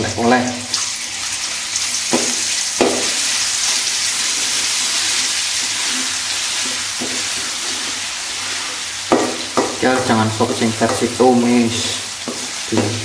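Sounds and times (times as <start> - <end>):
paste sizzling in oil: 0.4 - 13.0.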